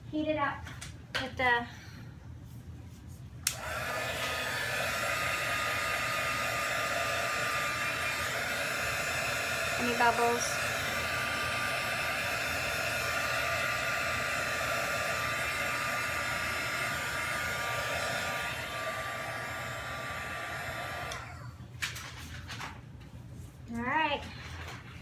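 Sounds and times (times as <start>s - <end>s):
hot-air blower motor whine: 3.4s - 21.8s.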